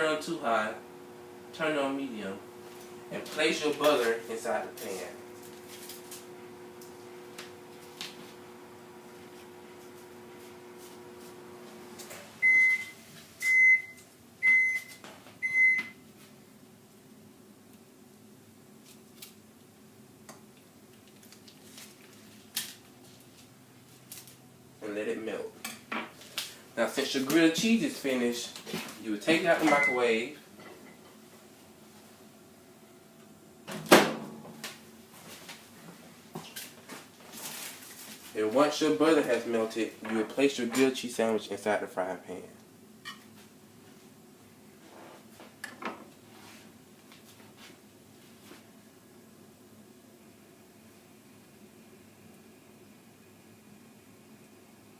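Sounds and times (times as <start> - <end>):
microwave oven humming: 0.0 - 16.1, 48.8 - 54.9
microwave beeps: 12.4 - 16.0, 29.6 - 30.2.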